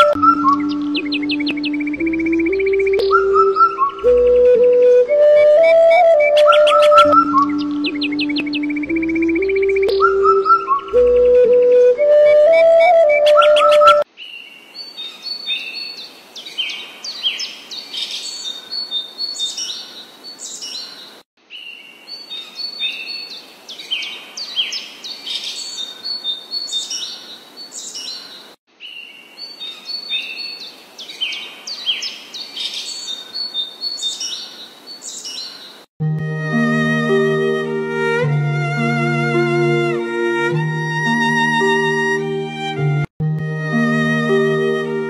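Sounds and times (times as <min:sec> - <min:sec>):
small songbirds chirping: 0:00.0 - 0:05.0, 0:06.3 - 0:11.8, 0:13.3 - 0:35.9.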